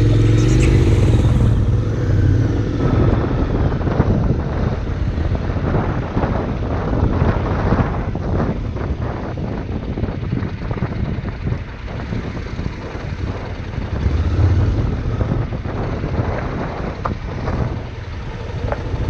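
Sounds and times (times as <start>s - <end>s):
riding noise: 0.0s - 8.5s
motorcycle engine running: 0.0s - 19.0s.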